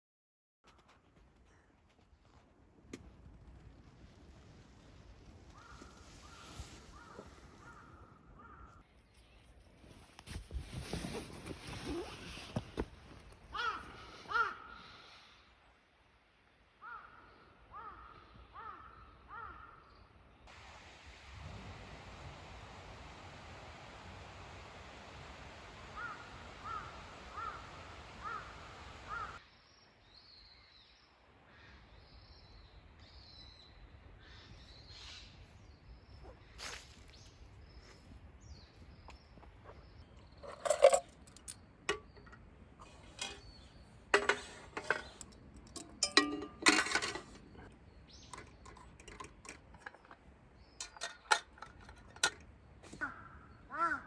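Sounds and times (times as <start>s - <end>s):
sharp knocks and clinks: 40.4s - 53.0s.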